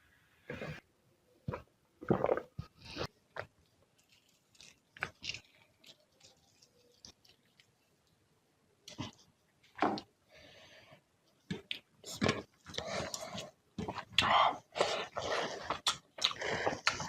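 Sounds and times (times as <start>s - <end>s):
person chewing food: 11.5s - 17.0s.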